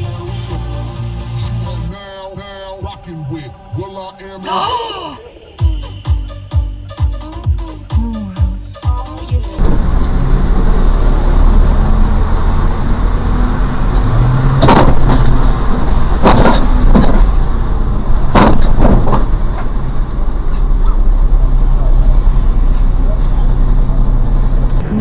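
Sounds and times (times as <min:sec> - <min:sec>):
car engine and road noise: 0:00.0 - 0:07.8, 0:08.4 - 0:25.0
sharp knocks or clicks: 0:14.6 - 0:17.4, 0:18.3 - 0:19.3.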